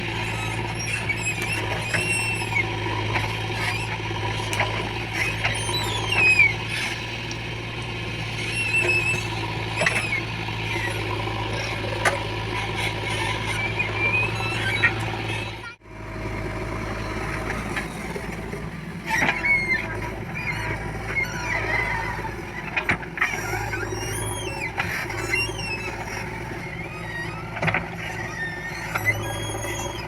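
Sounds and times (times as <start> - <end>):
high gliding squeaks: 0.0 - 7.3, 8.0 - 15.8, 23.2 - 30.0
diesel engine running: 0.0 - 30.0.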